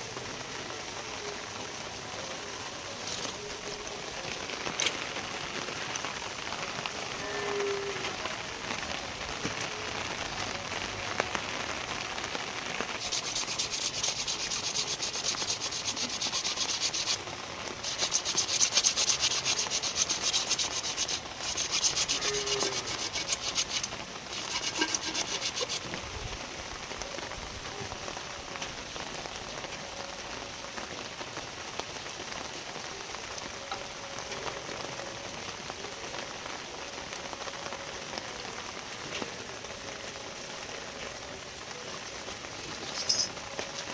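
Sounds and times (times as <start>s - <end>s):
steady rain: 0.0s - 43.9s
rapid abrasive rubbing: 13.0s - 26.0s.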